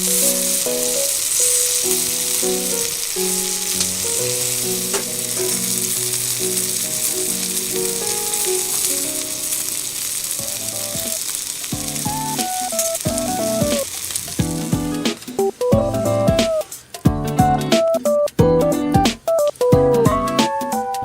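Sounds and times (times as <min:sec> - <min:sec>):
food sizzling in a hot pan: 0:00.0 - 0:17.0
acoustic guitar music: 0:00.0 - 0:21.0.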